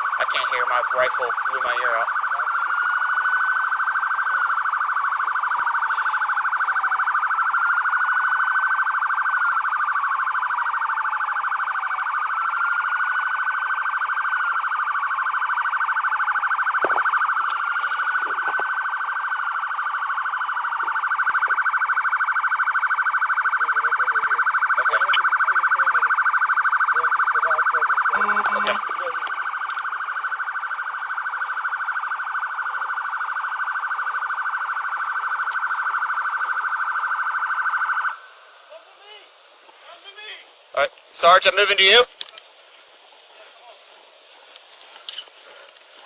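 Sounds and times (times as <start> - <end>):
police siren wailing: 0.0 - 42.4
police sirens warbling: 0.0 - 46.0.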